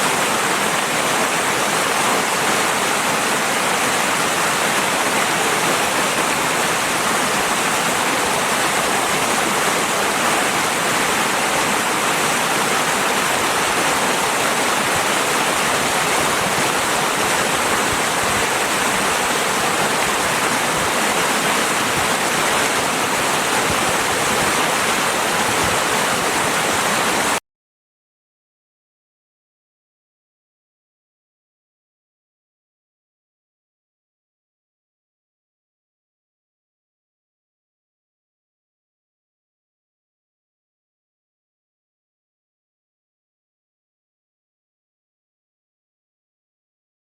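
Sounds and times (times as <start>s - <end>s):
river water flowing: 0.0s - 27.4s.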